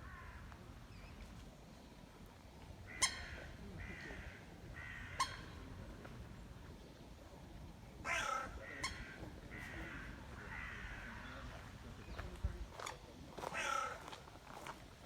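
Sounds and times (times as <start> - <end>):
heron croaking calls: 13.5 - 14.0.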